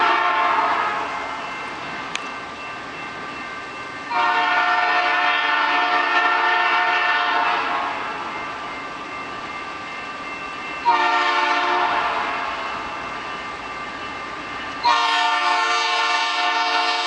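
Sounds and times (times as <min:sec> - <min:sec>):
locomotive air horn blast: 0:00.0 - 0:01.1, 0:04.1 - 0:08.0, 0:10.8 - 0:12.7, 0:14.8 - 0:17.0.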